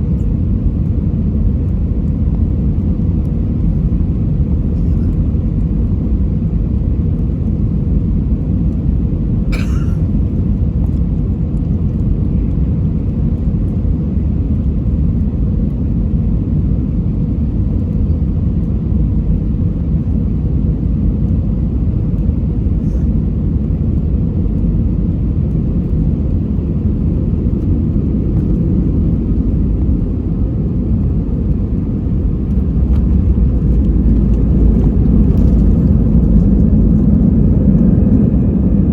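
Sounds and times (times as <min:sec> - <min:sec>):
aircraft cabin rumble: 0:00.0 - 0:38.9.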